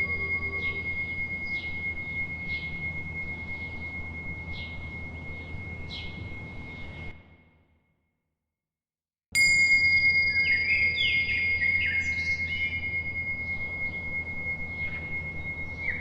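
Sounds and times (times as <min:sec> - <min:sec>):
birds chirping: 0:00.0 - 0:01.8, 0:10.2 - 0:16.0
meditation bell ringing: 0:00.0 - 0:07.6, 0:09.3 - 0:16.0.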